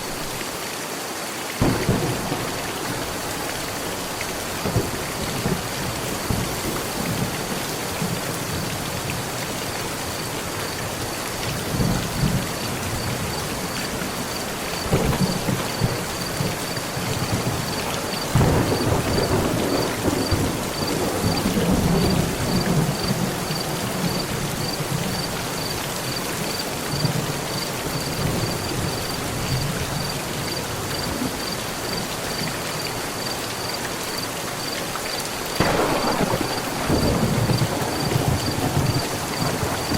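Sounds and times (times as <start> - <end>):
heavy rain on a metal roof: 0.0 - 39.9
rolling thunder: 1.6 - 8.2, 14.8 - 25.0, 35.6 - 39.9.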